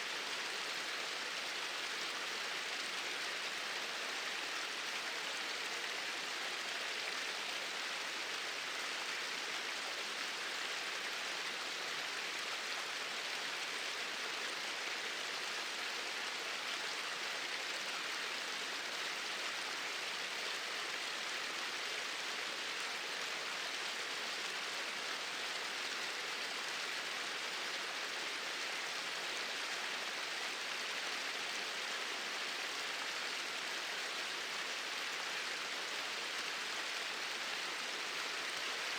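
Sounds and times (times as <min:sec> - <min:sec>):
small waterfall rushing: 0:00.0 - 0:38.9.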